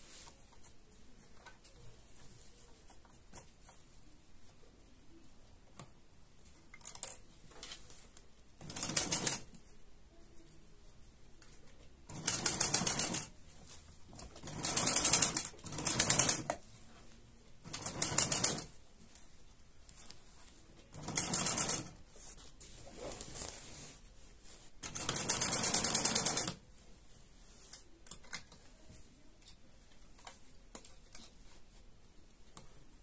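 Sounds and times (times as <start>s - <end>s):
sewing machine stitching: 8.6s - 9.5s, 12.1s - 13.3s, 14.2s - 16.6s, 17.6s - 18.7s, 20.9s - 22.0s, 24.8s - 26.6s.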